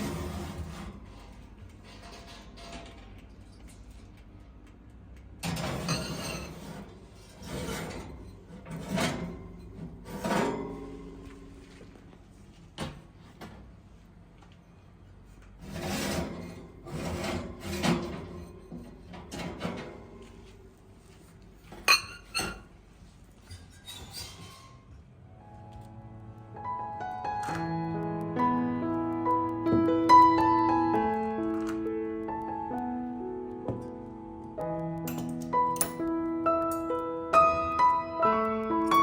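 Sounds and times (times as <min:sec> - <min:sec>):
kitchen scrapes rubs and knocks: 0:00.0 - 0:02.6, 0:15.6 - 0:20.4.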